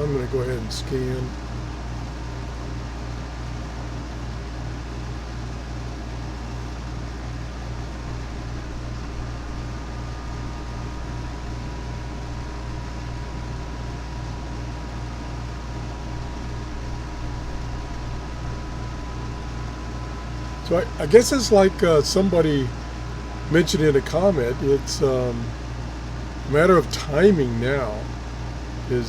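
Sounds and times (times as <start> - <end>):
radio static hissing: 0.0 - 1.8, 7.5 - 28.2, 28.8 - 29.0
pulsing low hum: 0.0 - 29.0.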